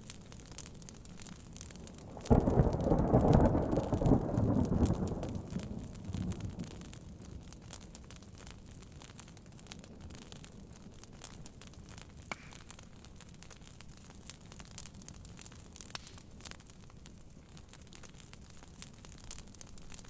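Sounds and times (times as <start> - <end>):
rain on a tent: 0.0 - 20.0
wood fire crackling: 0.0 - 20.0.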